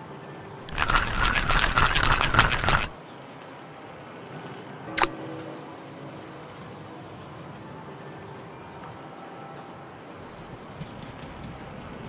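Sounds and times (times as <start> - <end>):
fishing reel clicking: 0.7 - 2.9.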